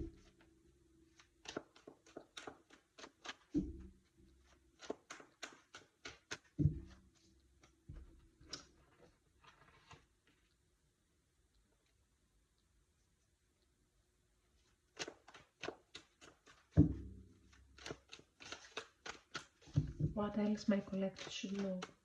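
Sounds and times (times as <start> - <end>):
cards flicking and shuffling: 1.1 - 7.8, 8.4 - 10.2, 14.6 - 22.0.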